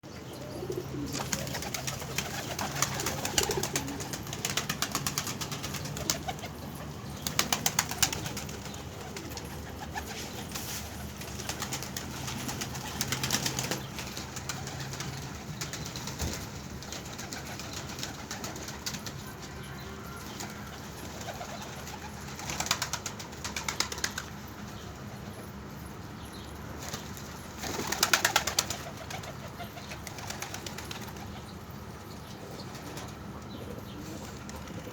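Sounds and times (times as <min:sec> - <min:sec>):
pigeons cooing: 0:00.1 - 0:16.4
rapid wing flapping: 0:01.1 - 0:06.4.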